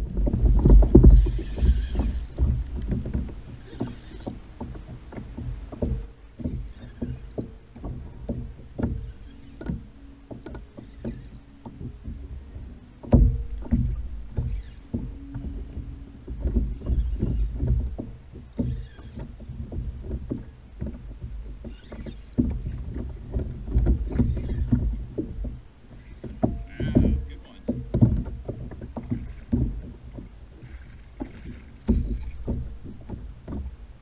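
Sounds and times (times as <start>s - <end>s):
low rumble: 0.0s - 3.6s
knocks against plastic hull: 26.3s - 33.7s.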